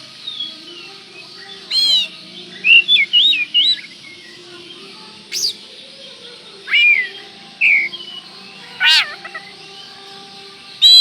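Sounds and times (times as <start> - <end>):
bird singing whistled phrases: 0.2 - 4.3, 5.3 - 5.6, 6.6 - 9.4, 10.8 - 11.0.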